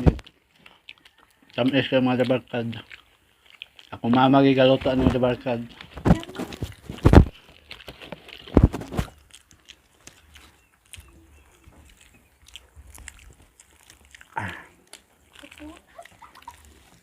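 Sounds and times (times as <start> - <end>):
people chewing: 0.0 - 17.0.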